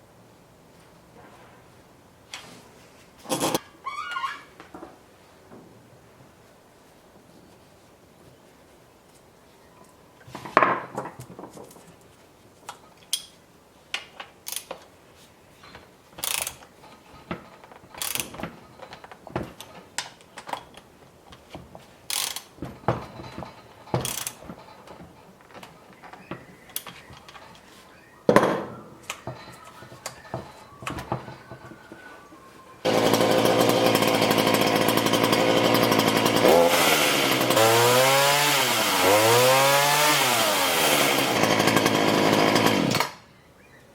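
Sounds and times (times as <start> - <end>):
chainsaw running and revving: 32.8 - 43.2.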